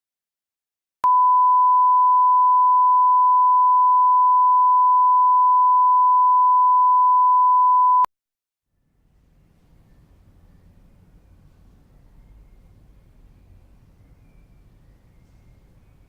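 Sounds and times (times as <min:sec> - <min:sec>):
steady electronic beep: 0:01.0 - 0:08.1.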